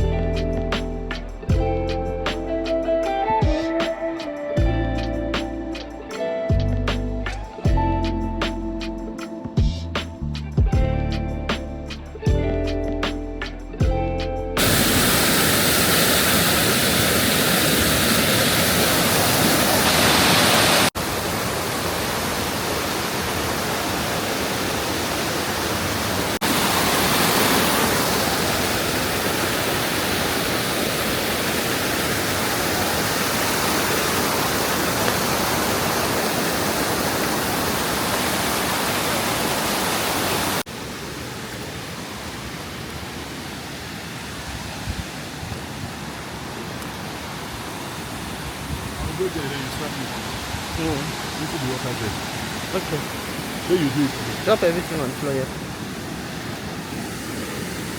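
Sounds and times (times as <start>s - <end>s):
waterfall rushing: 14.6s - 57.9s.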